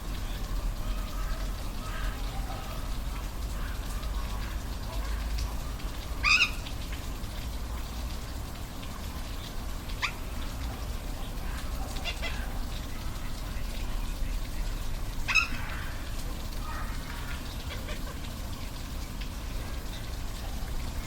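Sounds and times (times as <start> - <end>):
sharp animal calls: 6.2 - 6.6, 15.2 - 16.0.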